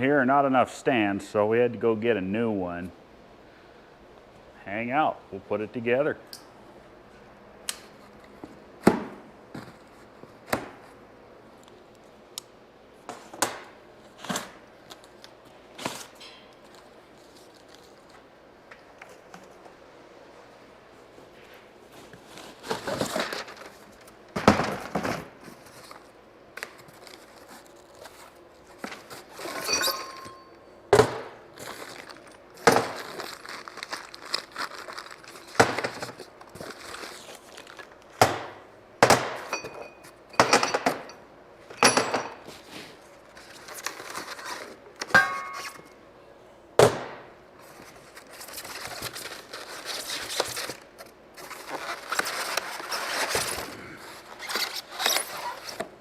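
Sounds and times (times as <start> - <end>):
metal parts clanking: 29.4 - 30.6.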